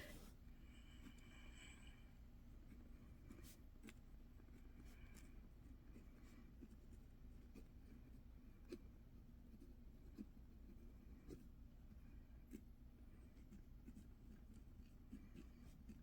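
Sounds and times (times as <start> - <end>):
low steady hum: 0.0 - 16.0
pen scratching on paper: 12.1 - 16.0.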